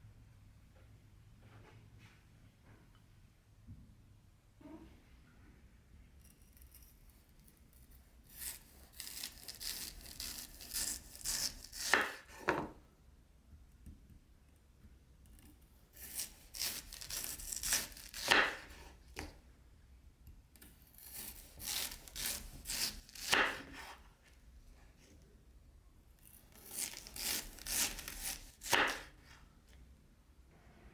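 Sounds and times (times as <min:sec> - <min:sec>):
knife sawing through vegetable: 0:08.2 - 0:12.4, 0:16.0 - 0:19.3, 0:21.0 - 0:24.0, 0:26.4 - 0:29.4.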